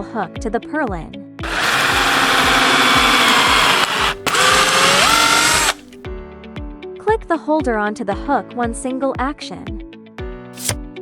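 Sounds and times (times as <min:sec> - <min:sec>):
power drill driving screws: 0:01.4 - 0:05.9, 0:10.6 - 0:10.8.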